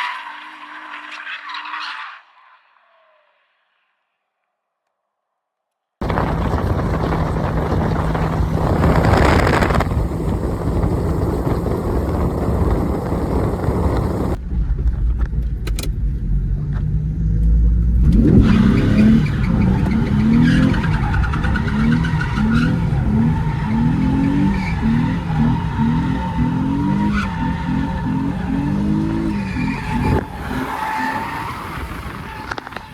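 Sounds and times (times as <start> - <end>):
car engine revving hard: 6.0 - 14.4, 18.0 - 32.6.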